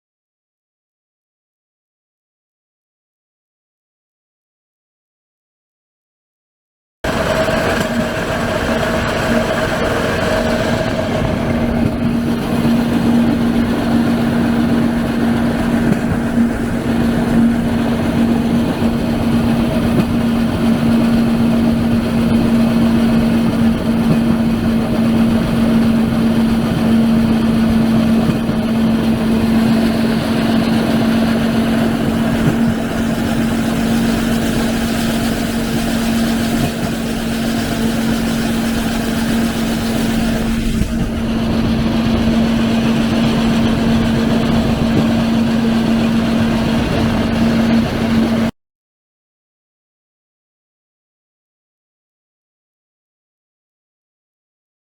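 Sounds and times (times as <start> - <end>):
small engine humming and rumbling: 7.0 - 48.5.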